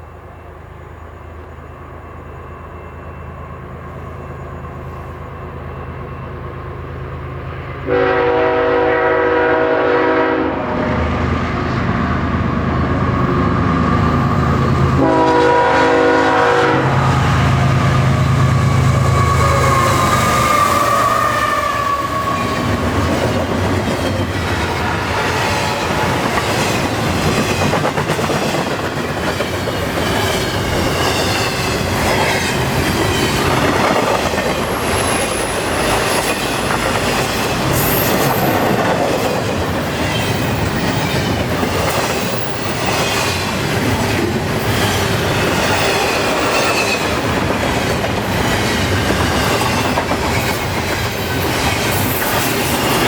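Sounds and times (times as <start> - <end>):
train wheels rumbling on rail: 0.0 - 53.0
high wheel squeal: 18.7 - 22.8, 34.6 - 38.8.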